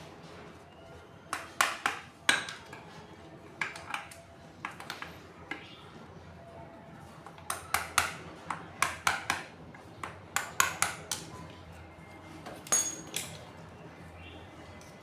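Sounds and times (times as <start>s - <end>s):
metal tools clinking: 12.6s - 13.5s.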